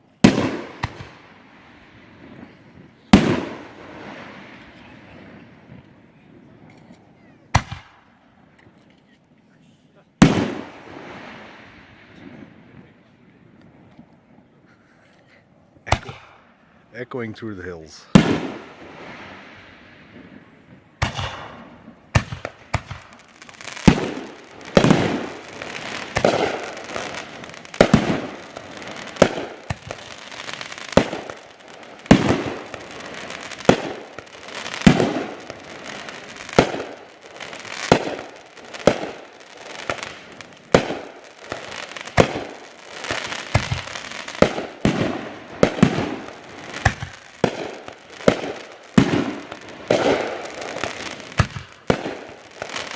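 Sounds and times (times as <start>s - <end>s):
fireworks bursting with bangs: 0.0s - 8.9s, 10.2s - 14.6s, 15.7s - 52.9s
fireworks crackle: 0.0s - 9.2s, 15.8s - 52.9s.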